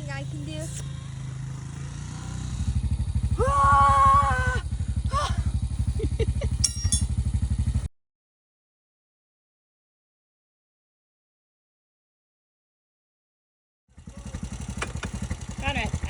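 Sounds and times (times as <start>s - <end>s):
small engine running: 0.0s - 7.9s, 13.9s - 16.0s
long held call: 3.3s - 5.6s.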